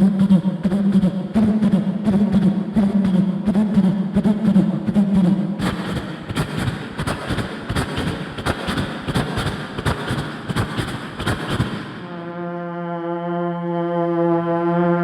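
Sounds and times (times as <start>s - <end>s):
beatbox train chuffing: 0.0s - 12.1s
vocal horn-like blast: 11.9s - 15.0s.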